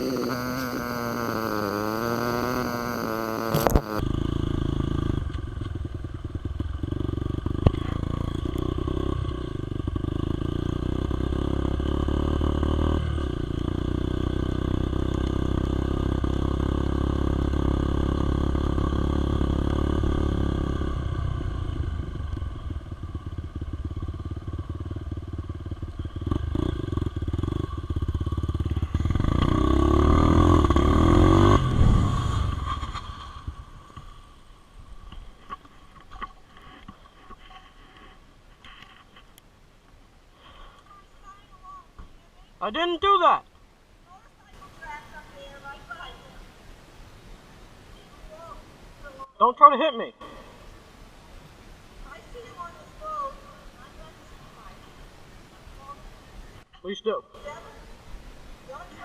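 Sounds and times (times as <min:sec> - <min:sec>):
dirt bike engine running: 0:00.0 - 0:35.6.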